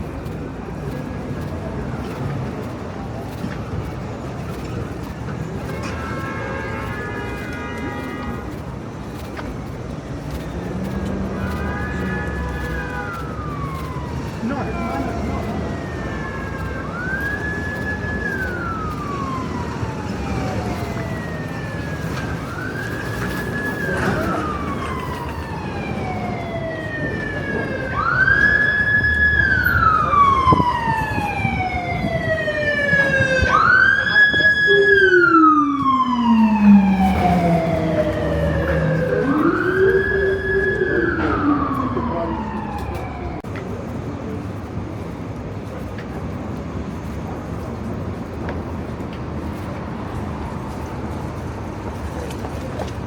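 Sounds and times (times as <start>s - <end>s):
street traffic noise: 0.0s - 53.0s
emergency vehicle siren wailing: 9.1s - 43.9s
low engine rumble: 29.4s - 44.4s.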